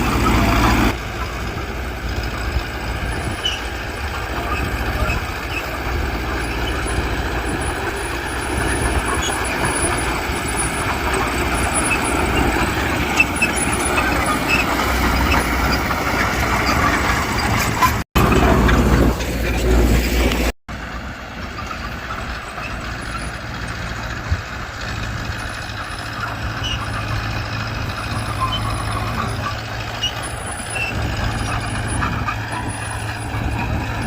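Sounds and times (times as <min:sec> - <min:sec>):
diesel engines of earthmoving machines: 0:00.0 - 0:34.0.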